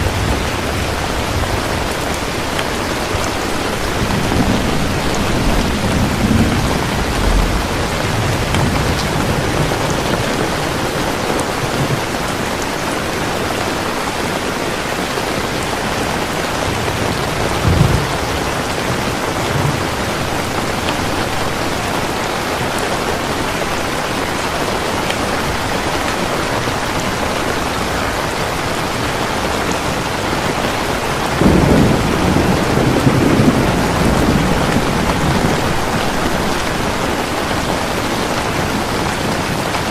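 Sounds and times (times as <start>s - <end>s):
distant thunder rolling: 0.0s - 12.4s, 15.5s - 22.4s, 31.0s - 39.8s
heavy rain: 0.0s - 39.9s.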